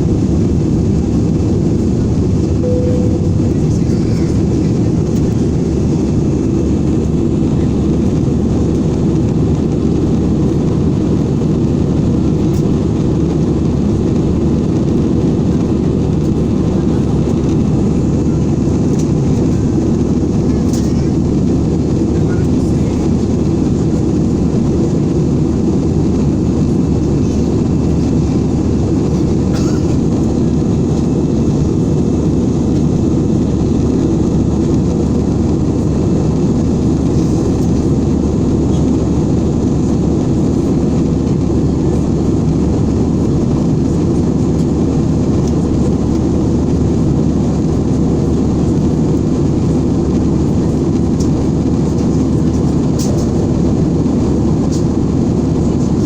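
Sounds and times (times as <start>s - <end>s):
airflow noise: 0.0s - 7.1s
airliner cabin engine rumble: 0.0s - 56.0s.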